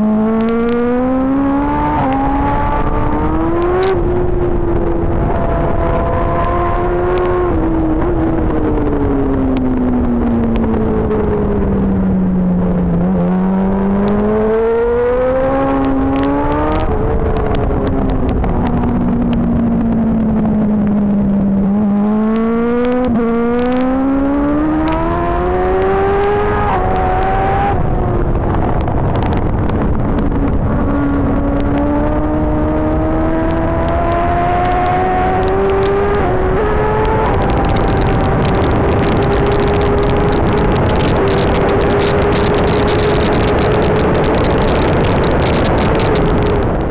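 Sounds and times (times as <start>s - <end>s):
superbike engine revving through gears: 21.7s - 27.8s, 31.4s - 46.6s.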